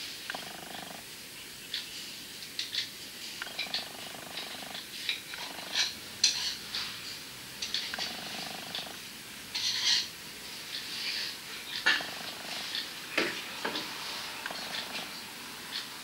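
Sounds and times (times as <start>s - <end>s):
crackling rustling sounds: 0.0s - 15.2s
cat purring: 0.1s - 1.1s, 3.4s - 6.7s, 7.6s - 9.1s, 11.7s - 12.9s, 14.4s - 15.4s.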